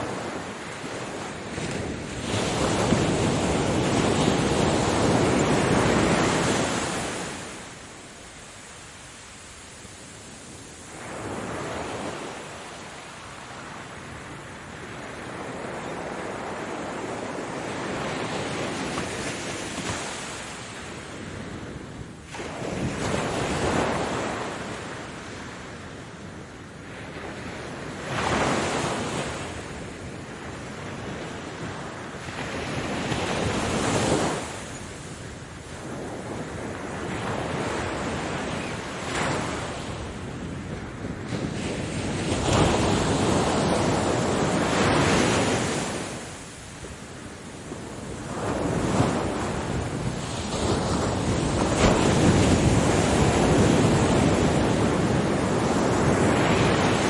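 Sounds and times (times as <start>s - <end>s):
sea waves breaking: 0.0s - 13.2s, 41.3s - 57.0s.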